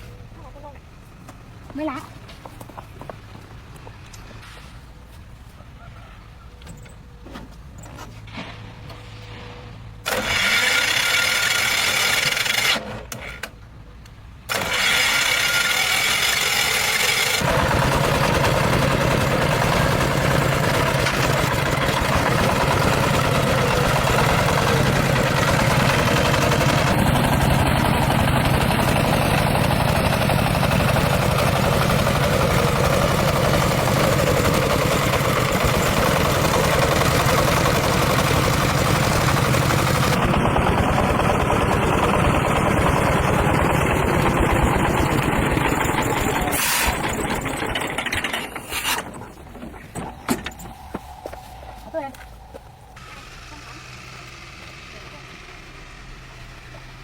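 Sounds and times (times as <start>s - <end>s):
engine cranking: 10.0s - 13.6s, 14.5s - 51.8s
farm vehicle engine running: 14.5s - 57.0s.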